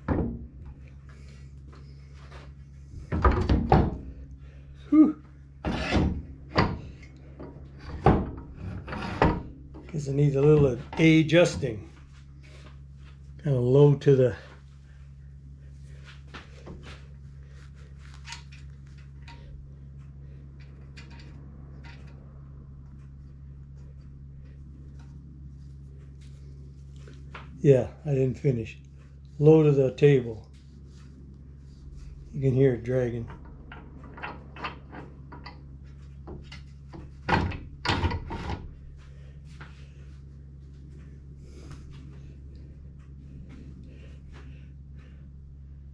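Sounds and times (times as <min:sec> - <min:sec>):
steady low hum: 0:00.0 - 0:45.9
saw fence scraping on rail: 0:05.6 - 0:06.2
saw fence scraping on table: 0:05.6 - 0:06.2, 0:08.6 - 0:09.5.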